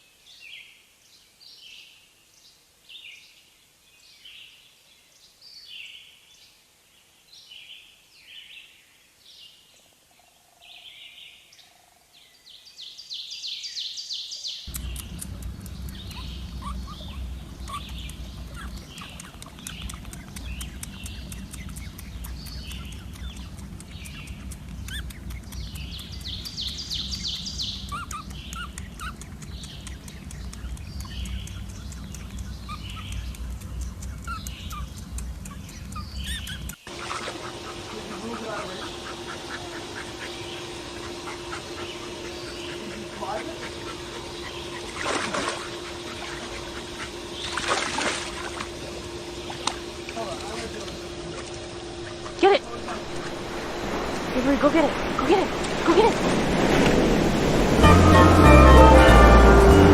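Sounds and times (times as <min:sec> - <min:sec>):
small birds chirping: 0:00.0 - 0:57.8
steady low rumble: 0:14.7 - 0:59.9.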